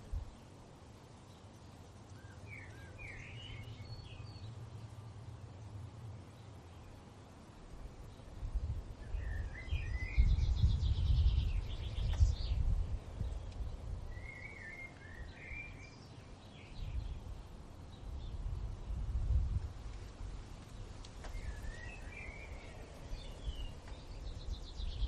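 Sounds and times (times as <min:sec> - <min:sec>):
birds chirping and trilling: 0:02.1 - 0:04.9, 0:09.0 - 0:17.3, 0:21.2 - 0:25.0
wind gusts rumbling: 0:07.0 - 0:25.0.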